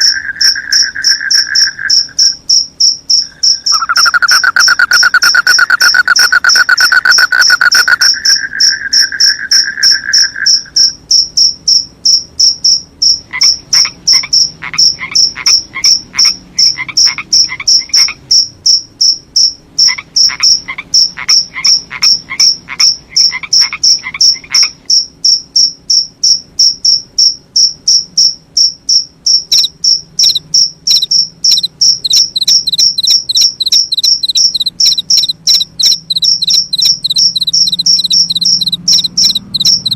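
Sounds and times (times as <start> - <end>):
crickets chirping: 0.0 - 39.9
frogs calling: 0.0 - 39.9
lower trill: 3.2 - 10.9, 29.5 - 39.9.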